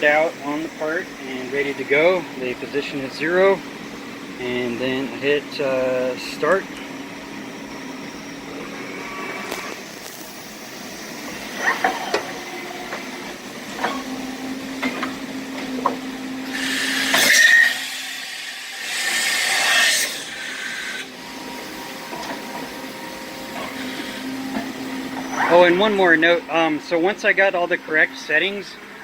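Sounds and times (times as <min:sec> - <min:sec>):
milling machine humming: 0:00.0 - 0:29.0
loud hissing bursts: 0:16.4 - 0:21.6.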